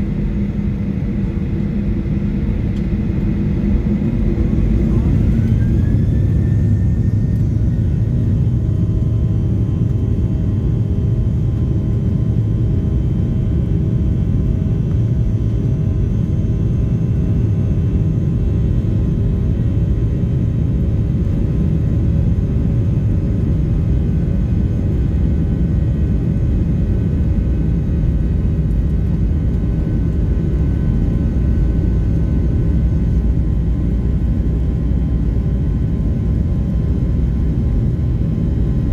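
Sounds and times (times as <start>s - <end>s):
jet engine rumble in cabin: 0.0s - 38.9s
thin engine whine: 2.4s - 11.4s.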